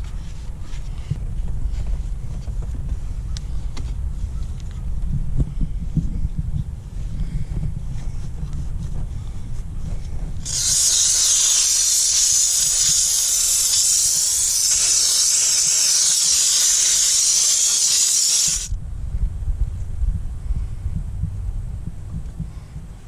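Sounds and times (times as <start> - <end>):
steam cleaner hissing: 10.4 - 18.7.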